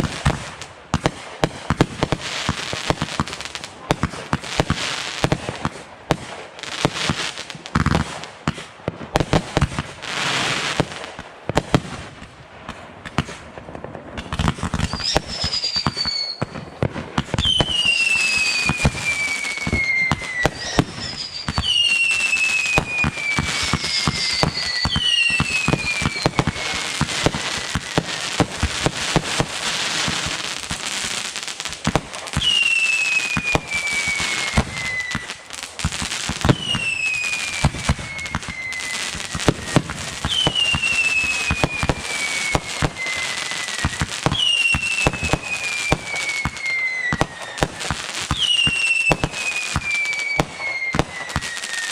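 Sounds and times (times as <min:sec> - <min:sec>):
fireworks popping and crackling: 0:00.0 - 0:51.9
descending firework whistles: 0:14.2 - 0:51.9.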